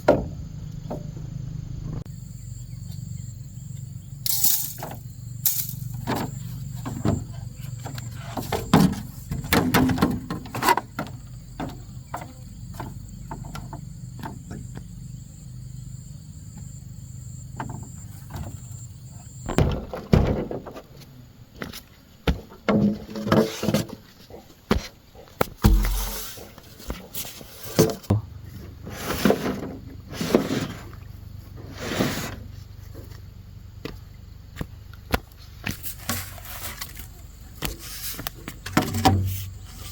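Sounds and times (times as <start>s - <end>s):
knocks and thuds: 0.0s - 1.2s, 19.5s - 20.8s, 24.7s - 26.5s.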